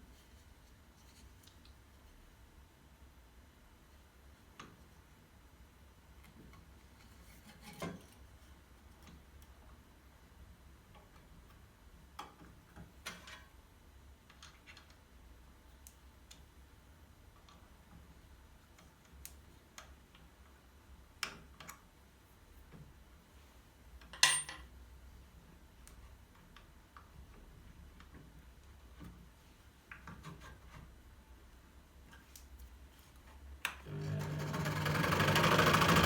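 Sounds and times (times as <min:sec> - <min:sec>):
faint clicks and light knocks: 0:15.7 - 0:16.6.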